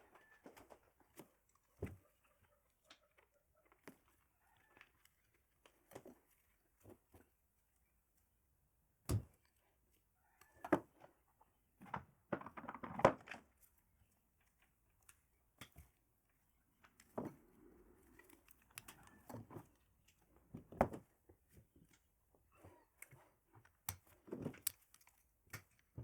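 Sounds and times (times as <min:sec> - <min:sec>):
objects being handled: 0:16.7 - 0:26.0.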